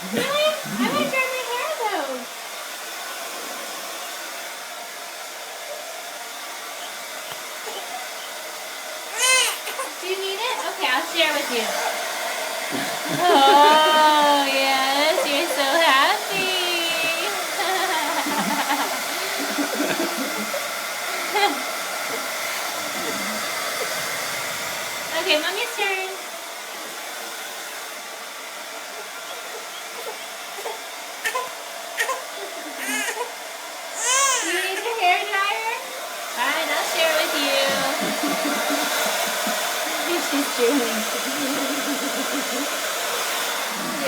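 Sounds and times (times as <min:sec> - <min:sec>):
hair dryer running: 0:00.0 - 0:44.0
baby babbling happily: 0:00.2 - 0:01.1, 0:07.6 - 0:08.1, 0:09.1 - 0:09.9, 0:30.0 - 0:33.3, 0:34.0 - 0:34.9
baby squealing: 0:07.6 - 0:08.3, 0:09.1 - 0:09.9, 0:29.5 - 0:33.4, 0:34.0 - 0:34.9.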